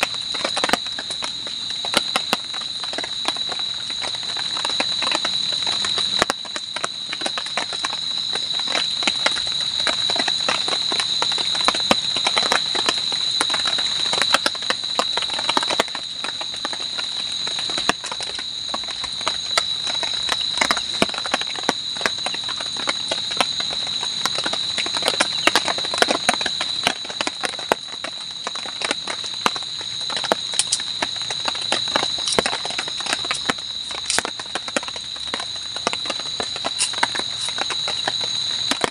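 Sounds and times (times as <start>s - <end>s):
night insects droning: 0.0s - 38.9s
irregular clicks and taps: 30.2s - 30.8s.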